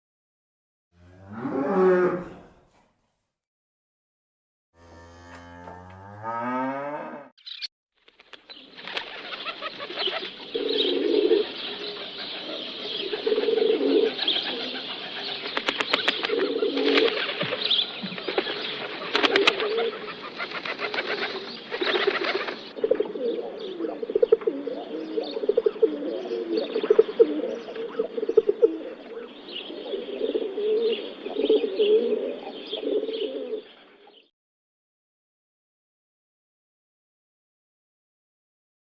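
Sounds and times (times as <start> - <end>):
birds cooing: 8.5 - 34.3.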